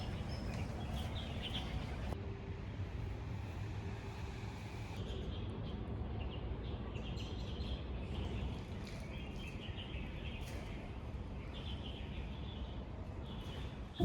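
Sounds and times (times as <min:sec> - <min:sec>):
small birds chirping: 0:00.0 - 0:02.2
low city hum: 0:00.0 - 0:14.0.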